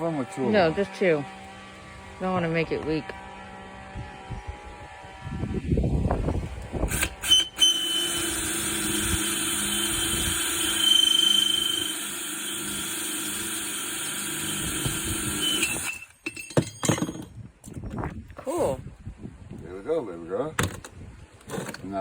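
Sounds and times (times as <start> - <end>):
electric drill boring through pot: 6.8 - 16.1
high squeal of drilling: 6.9 - 16.1.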